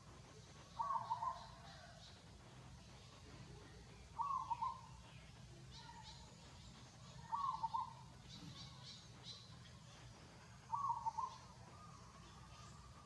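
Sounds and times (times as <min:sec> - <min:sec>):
faint high chirps: 0:00.0 - 0:13.0
wavering animal calls: 0:00.7 - 0:01.8, 0:04.2 - 0:04.9, 0:10.7 - 0:12.8.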